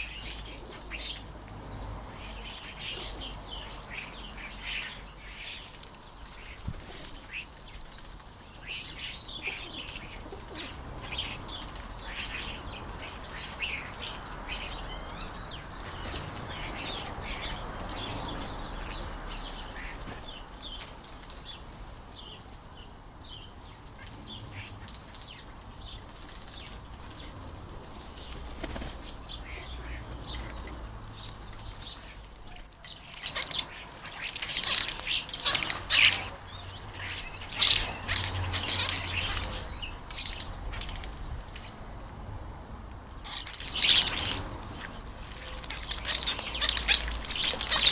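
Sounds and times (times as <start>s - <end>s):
birds chirping and calling: 0.0s - 47.9s
birds screeching harshly: 8.6s - 20.8s, 28.2s - 41.8s, 43.2s - 47.9s
wings flapping: 26.0s - 29.6s, 43.5s - 47.9s.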